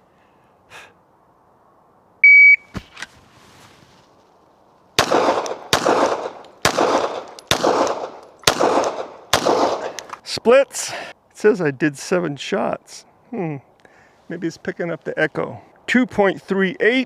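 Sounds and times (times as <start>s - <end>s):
shot timer beep: 2.2s - 2.7s
pistol shots echoing: 5.0s - 10.1s
pistol clicks: 5.0s - 10.2s.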